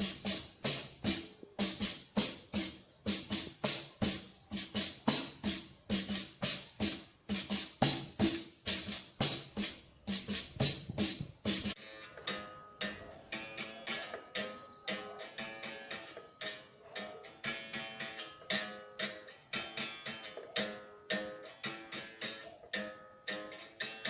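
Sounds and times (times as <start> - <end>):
tambourine struck rhythmically: 0.0 - 11.8.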